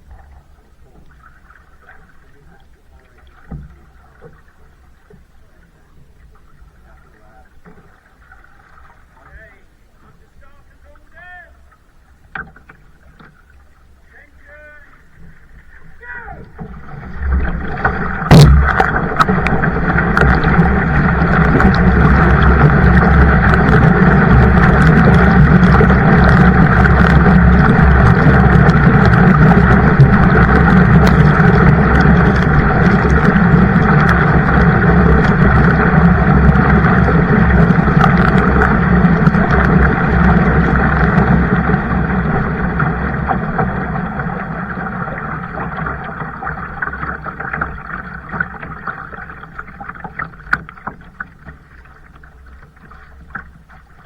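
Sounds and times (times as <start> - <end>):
rushing water and wind: 0.0 - 54.0
sharp knock: 18.3 - 18.8.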